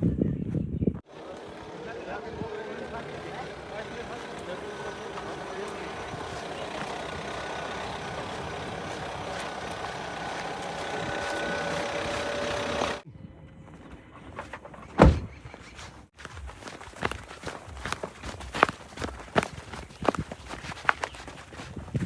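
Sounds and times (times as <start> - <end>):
diesel engine running: 1.0 - 13.0
loud low thump: 15.0 - 15.4.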